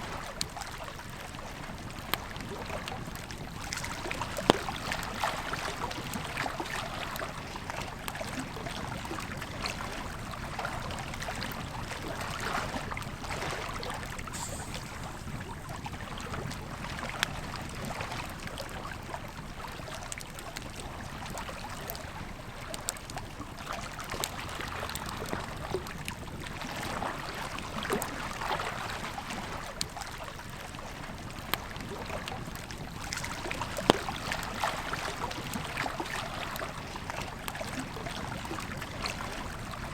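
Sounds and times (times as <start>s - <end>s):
river flowing: 11.8s - 17.2s
campfire crackling: 12.8s - 21.4s.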